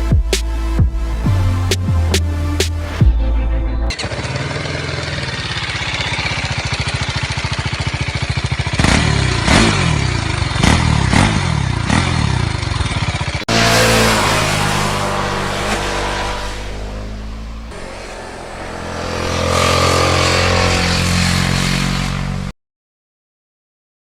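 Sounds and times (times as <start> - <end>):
motorcycle engine idling: 3.9 - 13.5.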